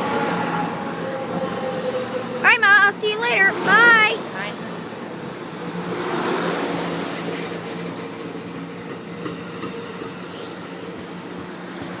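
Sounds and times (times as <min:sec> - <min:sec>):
train rolling with steady hum: 0:00.0 - 0:12.0.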